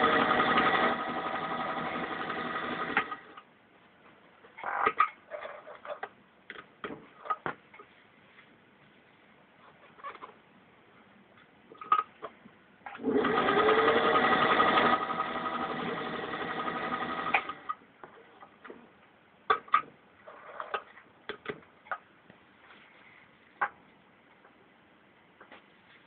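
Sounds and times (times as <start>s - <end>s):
sewing machine running: 0.0s - 3.3s, 13.0s - 17.7s.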